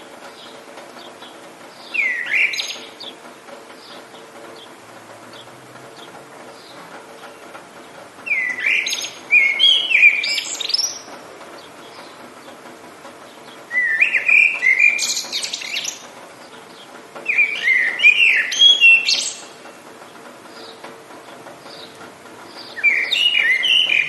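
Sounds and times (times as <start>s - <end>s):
songbird warbling: 0.4s - 3.2s, 8.2s - 12.2s, 13.5s - 19.6s, 21.7s - 24.0s.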